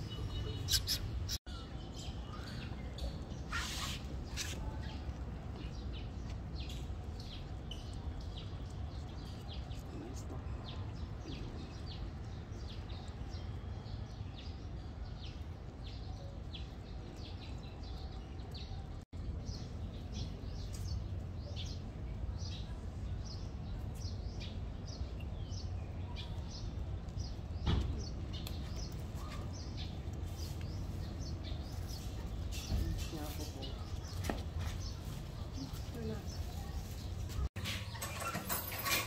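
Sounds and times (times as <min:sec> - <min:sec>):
small birds chirping: 0:00.0 - 0:39.0
thump: 0:27.6 - 0:28.0.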